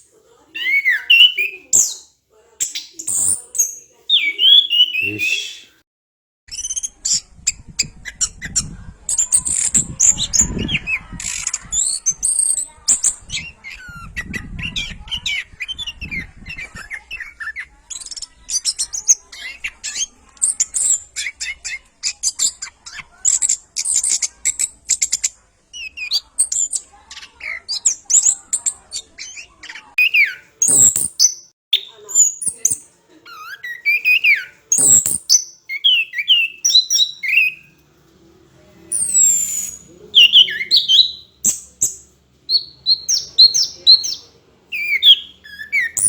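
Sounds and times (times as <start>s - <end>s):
bird singing: 0.0s - 5.8s, 30.0s - 37.8s, 38.9s - 46.0s.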